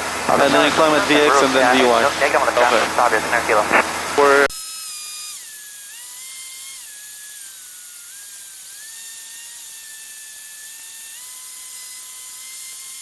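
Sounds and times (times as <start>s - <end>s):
aircraft engine whine through headset: 0.0s - 4.5s.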